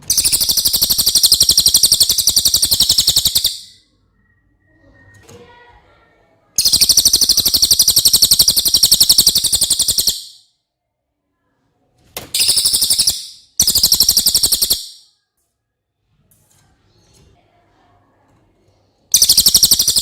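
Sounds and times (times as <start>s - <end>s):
songbird high-pitched trills: 0.0s - 5.1s, 6.6s - 10.4s, 12.4s - 15.1s, 19.1s - 20.0s.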